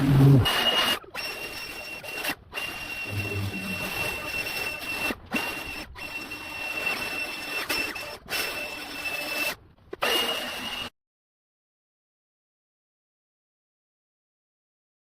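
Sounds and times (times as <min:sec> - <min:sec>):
thin high whine: 0:02.9 - 0:05.2
power equipment hissing: 0:03.0 - 0:04.4.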